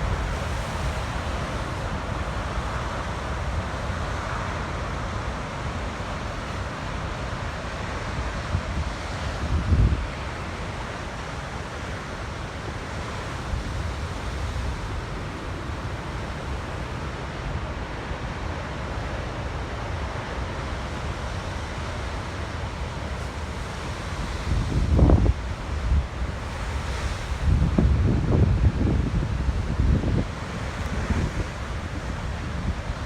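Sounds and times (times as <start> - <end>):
ocean surf washing ashore: 0.0 - 33.0
wind on microphone: 8.0 - 10.5, 23.6 - 33.0.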